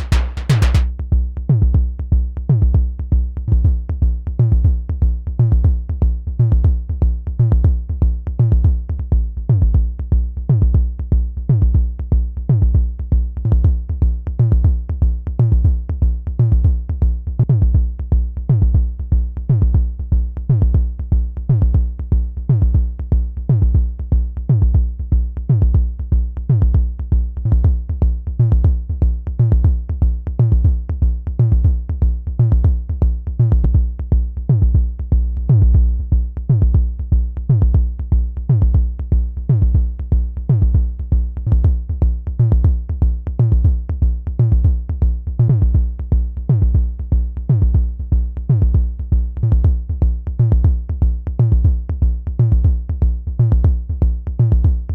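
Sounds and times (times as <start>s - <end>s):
synth kick hits: 0.0s - 0.9s.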